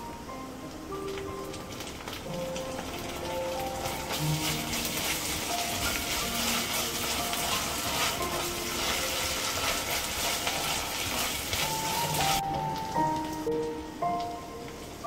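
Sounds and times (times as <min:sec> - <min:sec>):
onions sizzling in hot oil: 0:00.0 - 0:15.0
spatula stirring in pot: 0:02.8 - 0:12.4.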